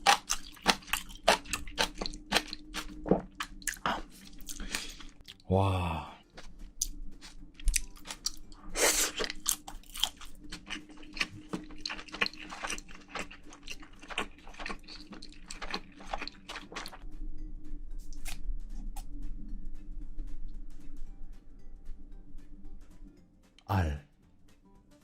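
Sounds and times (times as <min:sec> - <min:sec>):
chewing and crunching food: 0:00.0 - 0:05.5, 0:06.3 - 0:17.0, 0:18.0 - 0:19.1.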